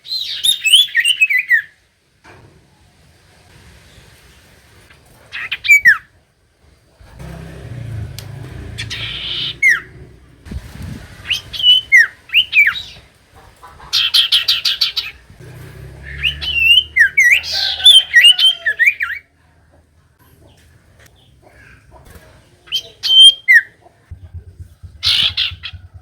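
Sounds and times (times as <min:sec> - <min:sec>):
bird singing whistled notes: 0:16.1 - 0:17.4.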